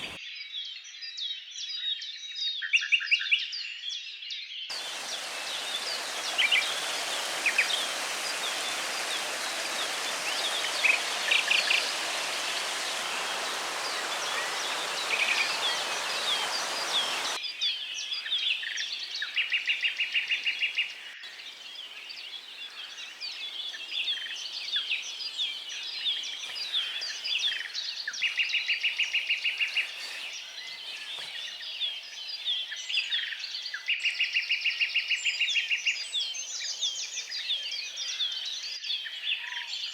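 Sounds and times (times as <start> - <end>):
birds singing and chirping: 0.0 - 0.2, 4.7 - 34.0
steady hiss: 0.0 - 0.2, 4.7 - 17.4.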